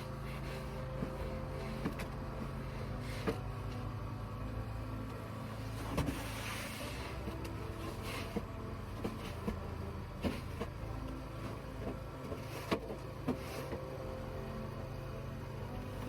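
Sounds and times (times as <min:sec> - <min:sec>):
low motor hum: 0:00.0 - 0:16.0.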